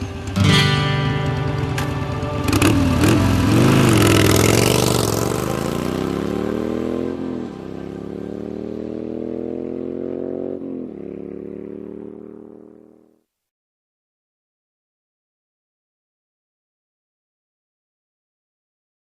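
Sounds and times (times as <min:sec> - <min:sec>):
motorcycle engine accelerating: 0:00.0 - 0:13.2.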